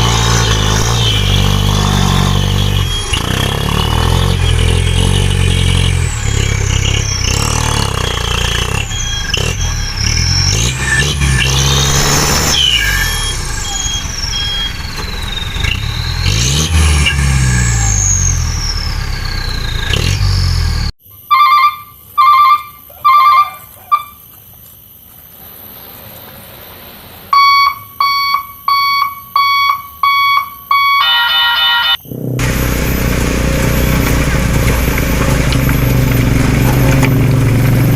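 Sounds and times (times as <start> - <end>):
truck engine revving: 0.0 - 21.0, 31.9 - 37.9
electronic beeps: 27.4 - 34.0.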